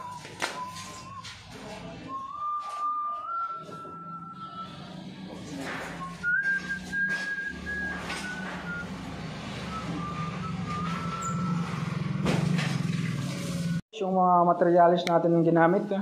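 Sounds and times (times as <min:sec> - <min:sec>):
high whistled tone: 0:00.0 - 0:05.0, 0:05.8 - 0:08.9, 0:09.5 - 0:12.0.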